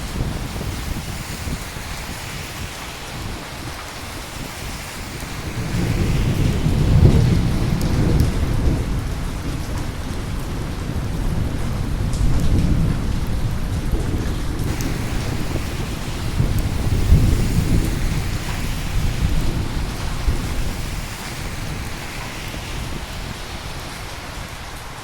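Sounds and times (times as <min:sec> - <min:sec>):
rain falling: 0:00.0 - 0:25.0
thunder rolling: 0:05.1 - 0:10.0, 0:10.6 - 0:25.0.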